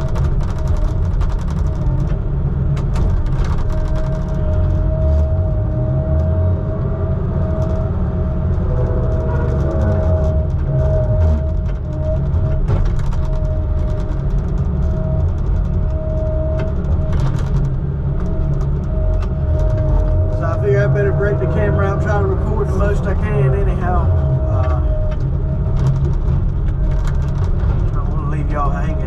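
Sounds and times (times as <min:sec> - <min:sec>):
clicks and rattles: 0:00.0 - 0:05.1, 0:07.5 - 0:20.4, 0:23.8 - 0:29.0
heavy equipment engine running: 0:01.8 - 0:29.0.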